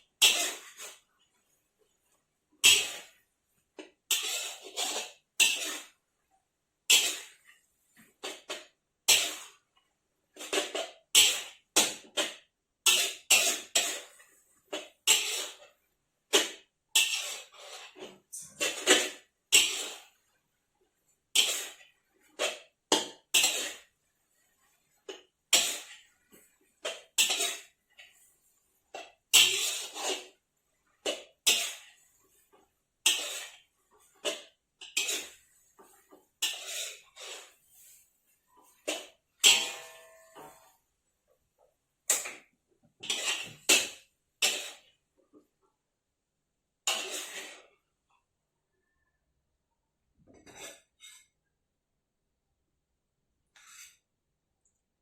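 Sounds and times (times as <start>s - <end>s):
utensils clinking against bowl: 38.8s - 40.8s.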